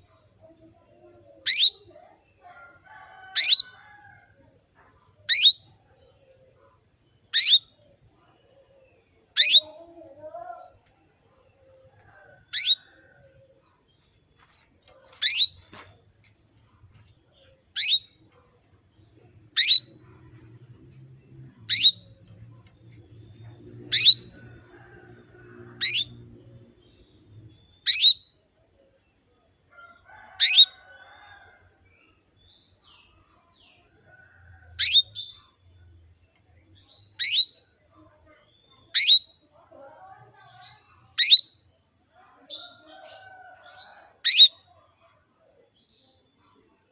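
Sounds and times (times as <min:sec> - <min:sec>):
canary chirping: 0:01.4 - 0:03.8, 0:05.3 - 0:06.2, 0:07.3 - 0:07.7, 0:09.3 - 0:09.8, 0:11.7 - 0:13.0, 0:14.8 - 0:15.7, 0:17.7 - 0:18.3, 0:19.2 - 0:28.2, 0:30.1 - 0:31.0, 0:34.8 - 0:35.6, 0:36.9 - 0:37.6, 0:38.8 - 0:39.3, 0:40.5 - 0:41.6.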